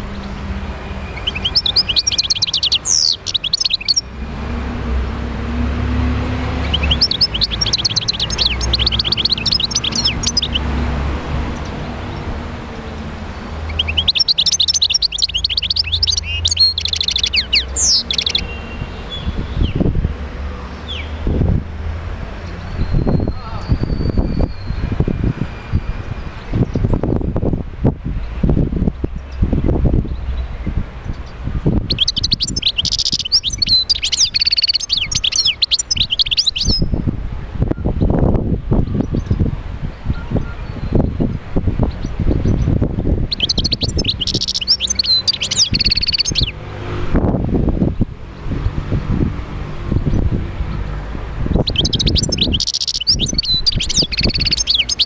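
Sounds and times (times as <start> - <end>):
goldfinch singing: 1.0 - 4.1, 6.2 - 12.3, 13.6 - 19.8, 30.1 - 37.0, 41.9 - 46.6, 51.5 - 55.0
bird twittering song: 1.0 - 4.2, 6.0 - 12.4, 13.0 - 21.4, 22.4 - 27.4, 28.2 - 46.6, 49.9 - 55.0.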